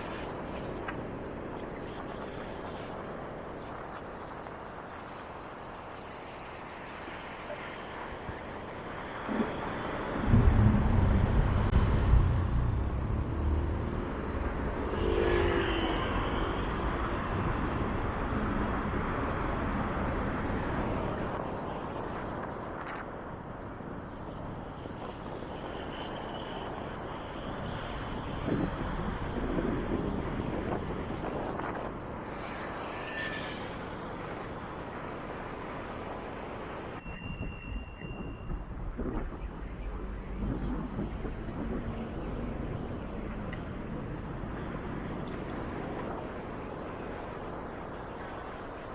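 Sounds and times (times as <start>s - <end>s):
traffic hum: 3.6s - 22.1s, 38.7s - 48.9s
heavy vehicle rumble: 9.2s - 15.1s.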